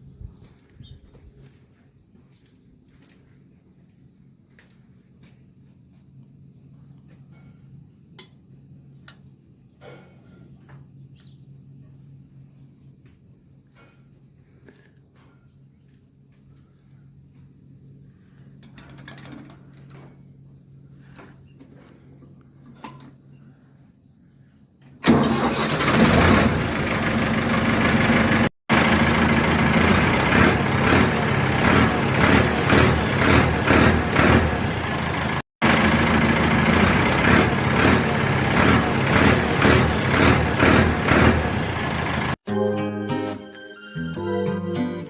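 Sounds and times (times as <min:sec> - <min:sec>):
tractor engine running loudly: 0:25.0 - 0:42.4.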